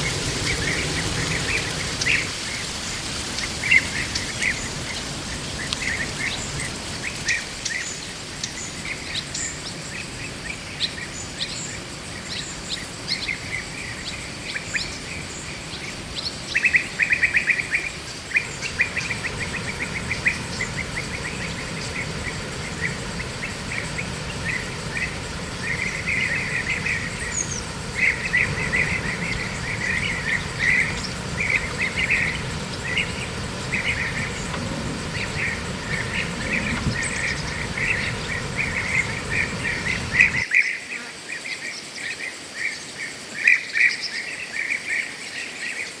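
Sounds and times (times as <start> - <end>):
low rumbling noise: 0.0 - 40.4
rapid high chirping: 18.2 - 40.4.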